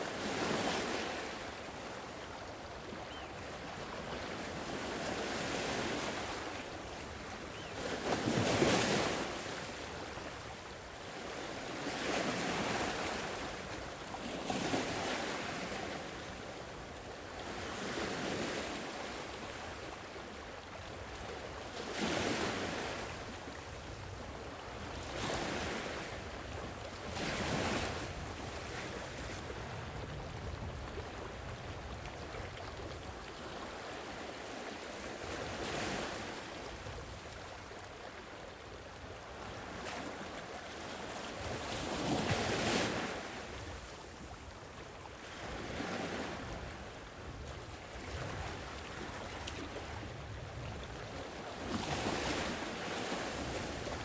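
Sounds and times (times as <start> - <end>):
sea waves breaking on shore: 39.3 - 54.0.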